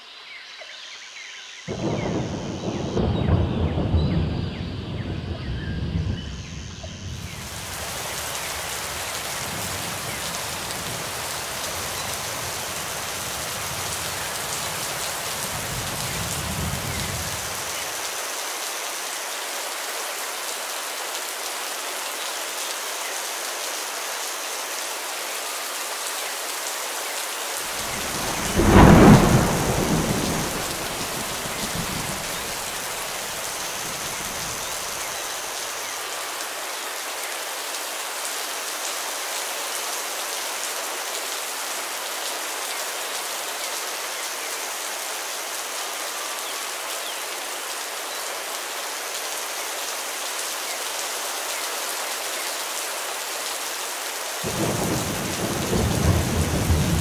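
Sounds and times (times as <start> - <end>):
steady rain falling: 0.0 - 57.0
thunder rumbling: 1.7 - 7.8, 27.7 - 35.0, 54.5 - 57.0.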